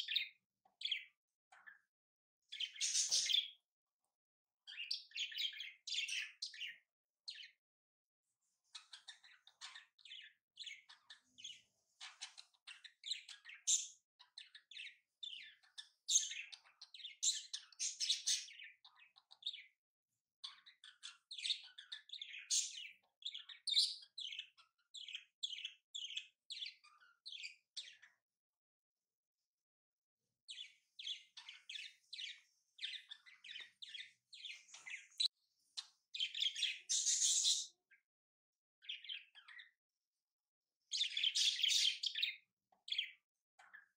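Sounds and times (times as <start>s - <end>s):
small birds chirping: 0.0s - 38.2s, 38.8s - 43.9s.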